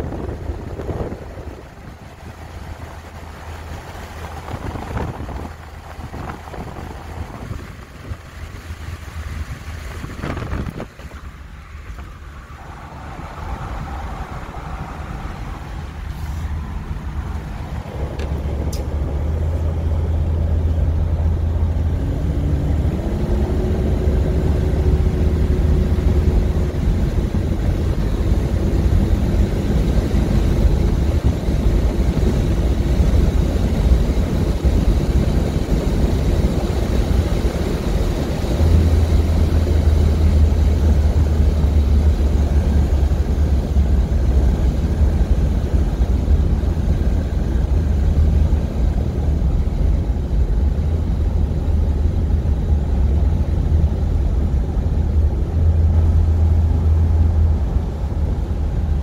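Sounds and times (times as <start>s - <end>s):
car engine rumble: 0.0s - 59.0s
road and wind noise: 0.0s - 59.0s.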